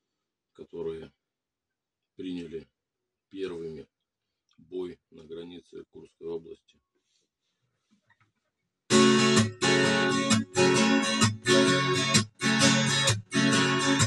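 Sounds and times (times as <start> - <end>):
acoustic guitar strumming: 8.9 - 14.0.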